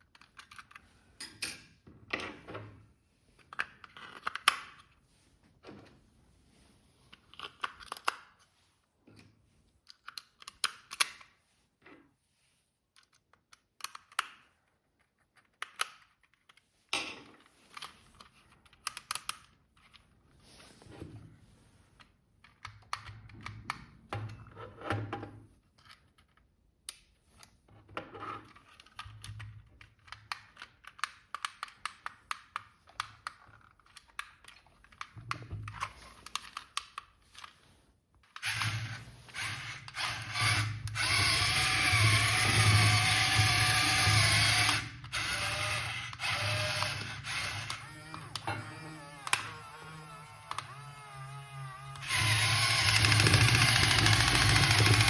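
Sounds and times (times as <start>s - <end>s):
hands handling plastic toy: 0.0s - 24.5s, 25.3s - 40.1s.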